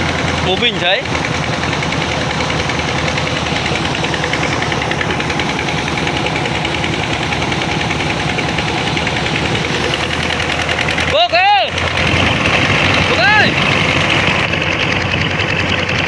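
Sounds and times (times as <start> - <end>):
old tractor engine running: 0.0 - 16.0.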